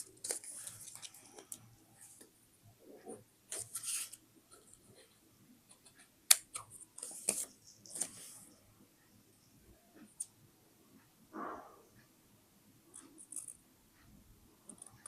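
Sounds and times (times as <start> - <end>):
paper rustling: 0.0 - 1.6, 3.5 - 4.2, 7.0 - 8.3.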